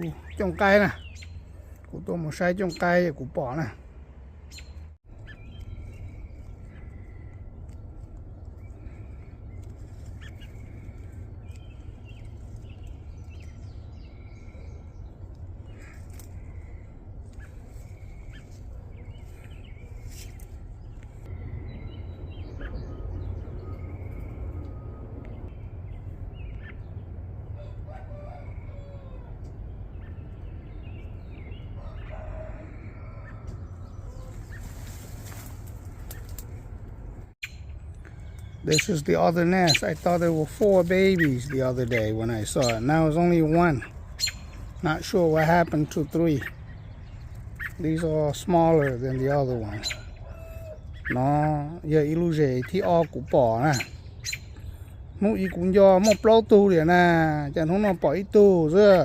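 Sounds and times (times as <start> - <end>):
steady low rumble: 0.0 - 56.0
small birds chirping: 0.0 - 59.0
rooster crowing: 27.5 - 29.4, 31.8 - 34.4, 49.7 - 50.8.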